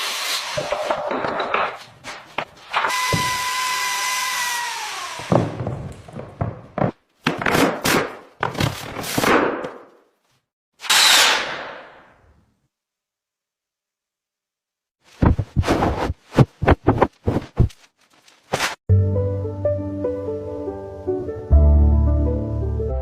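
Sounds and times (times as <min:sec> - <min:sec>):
power tool whining: 0:02.9 - 0:05.6
knocks and thuds on material: 0:15.2 - 0:17.8.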